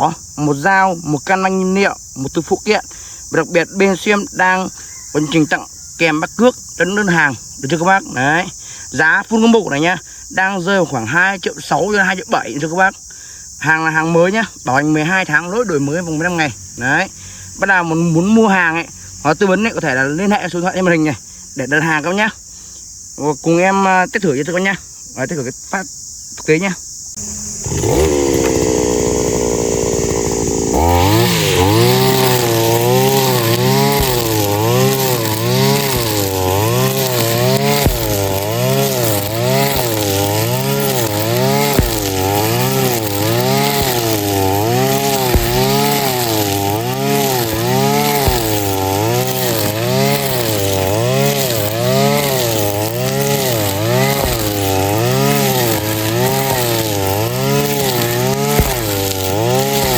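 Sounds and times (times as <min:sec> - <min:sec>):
brush cutter engine revving: 0:27.2 - 0:59.9.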